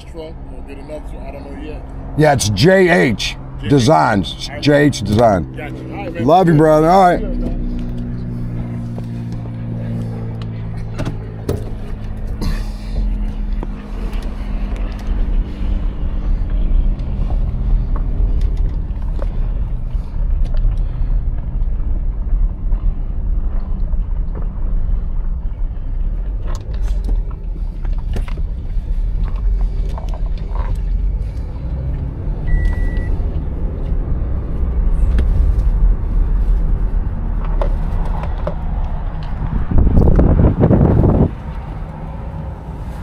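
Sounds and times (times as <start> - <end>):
vehicle engine and road rumble: 0.0 - 43.0
short high beep: 32.5 - 33.1.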